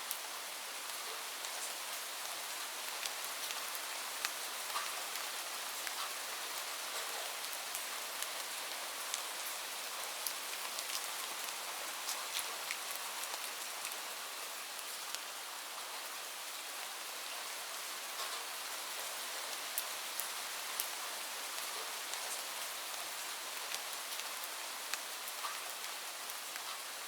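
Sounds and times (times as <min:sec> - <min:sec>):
raindrops ticking close by: 0:18.1 - 0:26.9.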